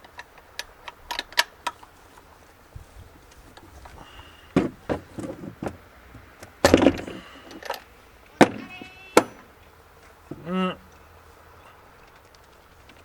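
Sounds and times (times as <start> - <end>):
knocks and clatters: 4.6 - 7.8.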